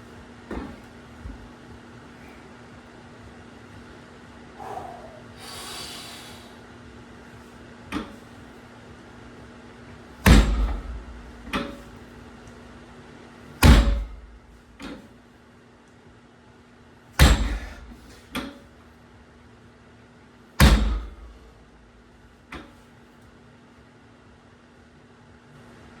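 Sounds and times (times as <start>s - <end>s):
heavy barbell thuds on floor: 10.2s - 12.0s, 13.6s - 14.4s, 17.2s - 18.0s, 20.6s - 21.4s.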